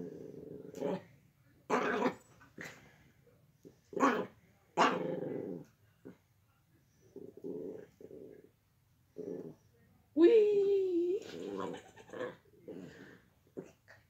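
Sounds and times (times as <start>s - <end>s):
dog barking and growling: 0.0s - 1.1s, 1.7s - 2.8s, 3.9s - 6.2s.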